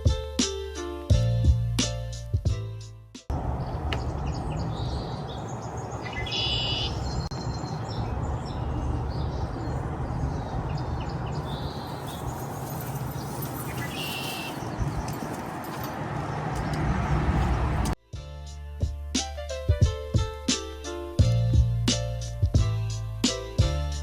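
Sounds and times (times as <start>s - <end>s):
low outdoor rumble: 3.3s - 6.1s
small birds chirping: 3.3s - 17.9s.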